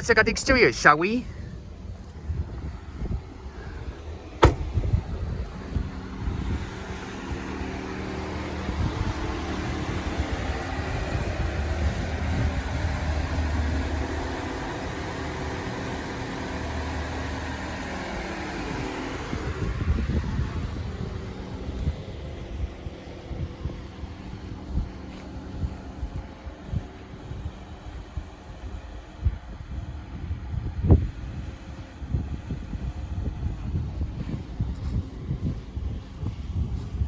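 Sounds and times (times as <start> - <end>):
car engine idling: 0.0 - 37.0
sharp knock: 4.4 - 4.7.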